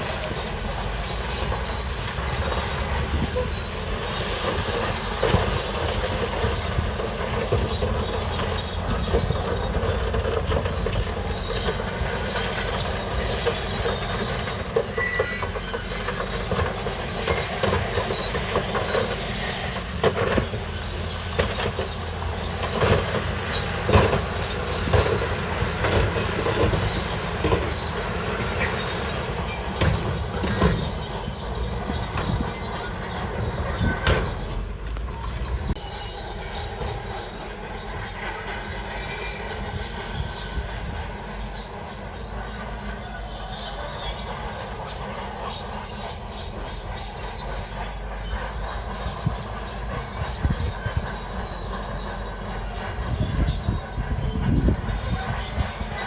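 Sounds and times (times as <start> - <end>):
bulldozer diesel engine running: 0.0 - 56.0
steel tracks clanking and squealing: 0.0 - 56.0
knocks and clanks: 4.3 - 35.8.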